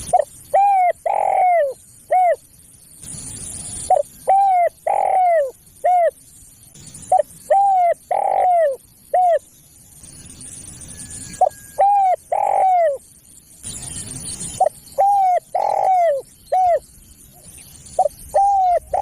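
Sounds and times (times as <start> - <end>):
dove cooing: 0.0 - 2.4, 3.9 - 6.2, 7.1 - 9.5, 11.4 - 13.0, 14.6 - 19.0.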